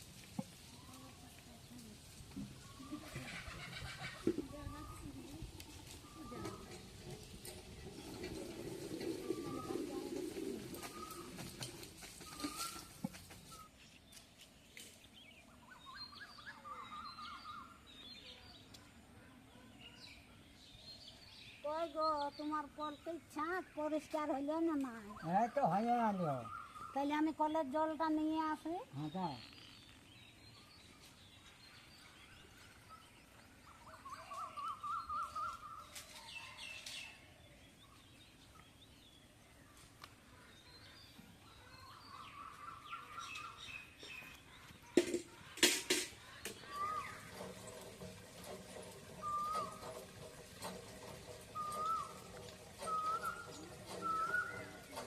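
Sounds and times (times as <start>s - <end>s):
faint outdoor background noise: 0.0s - 55.0s
small birds chirping: 0.0s - 55.0s
bird warbling run: 2.6s - 13.8s, 39.9s - 55.0s
bird warbling trill: 46.2s - 47.8s, 49.1s - 50.7s, 51.3s - 55.0s.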